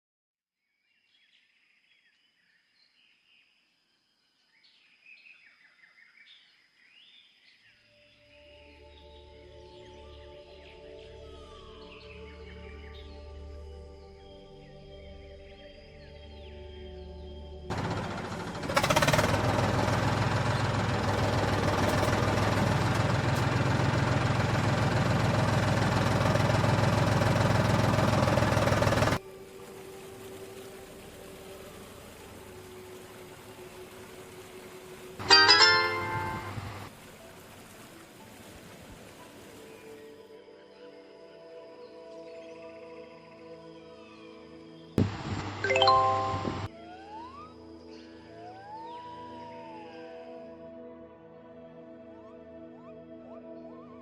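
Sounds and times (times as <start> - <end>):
tractor engine chugging: 17.7 - 29.2, 35.2 - 36.9
steady high-pitched tone: 45.7 - 46.7.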